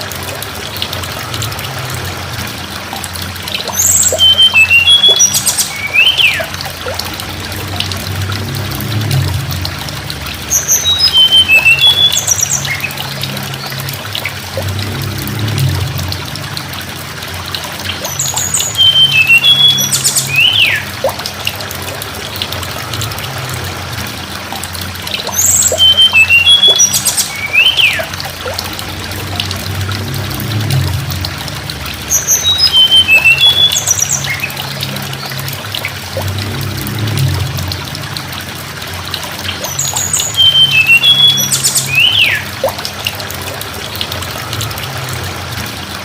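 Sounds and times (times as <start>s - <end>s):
low hum: 0.0s - 46.0s
water rushing: 0.0s - 46.0s
songbird whistling song: 3.6s - 7.0s, 10.5s - 13.2s, 18.0s - 21.2s, 25.2s - 28.6s, 32.1s - 34.6s, 39.6s - 42.8s.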